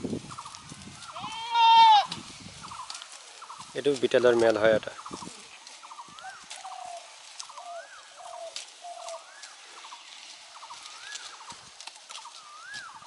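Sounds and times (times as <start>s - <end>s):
sharp crackles: 0.0s - 13.0s
bird calling: 0.3s - 13.0s.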